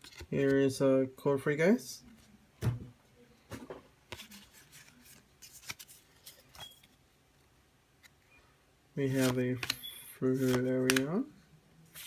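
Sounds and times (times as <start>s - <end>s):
cards clicking and rustling: 4.1s - 7.0s, 9.0s - 11.3s
card snaps: 9.2s - 9.8s, 10.4s - 11.1s.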